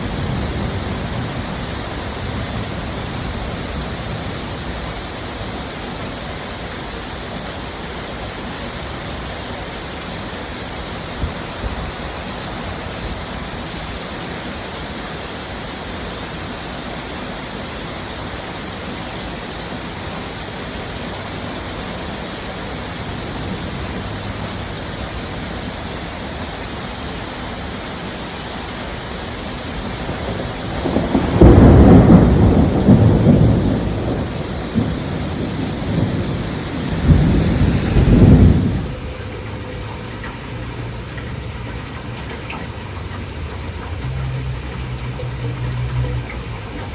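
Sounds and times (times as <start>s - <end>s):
thunder clap rumbling: 0.0s - 5.2s, 22.0s - 26.1s, 29.6s - 46.9s
heavy rain: 0.0s - 46.9s.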